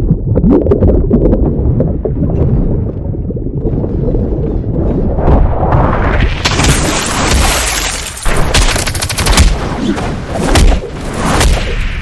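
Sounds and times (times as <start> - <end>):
deep rumble: 0.0 - 9.6
sharp cracks and impacts: 5.7 - 12.0.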